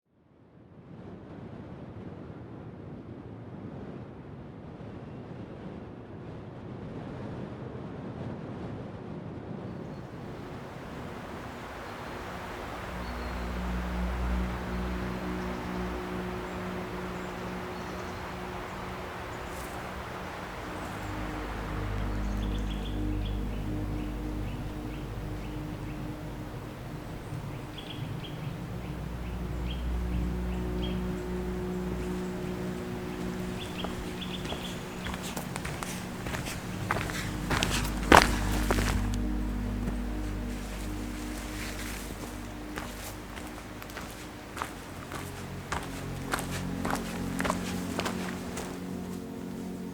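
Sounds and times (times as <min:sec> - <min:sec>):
songbird chirping: 0:09.9 - 0:49.9
low rushing outdoor ambience: 0:10.0 - 0:49.9
steady low hum: 0:10.2 - 0:49.9.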